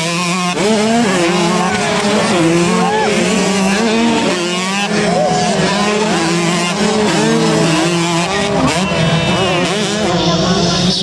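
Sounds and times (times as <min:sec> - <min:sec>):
motocross bike engines racing: 0:00.0 - 0:11.0.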